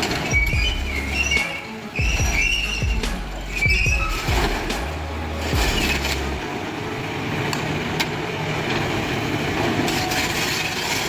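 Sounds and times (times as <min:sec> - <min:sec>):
low hum: 0:02.0 - 0:07.5
heavy vehicle engine running: 0:02.0 - 0:10.2.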